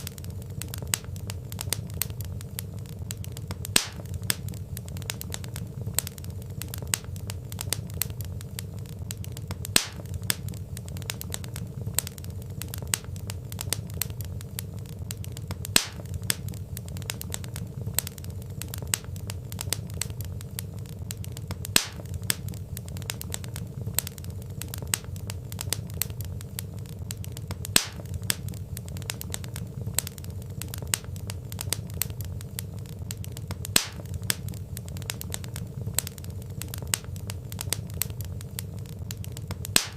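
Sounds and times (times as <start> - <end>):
fire popping: 0.0 - 39.9
log fire crackling: 0.0 - 39.9.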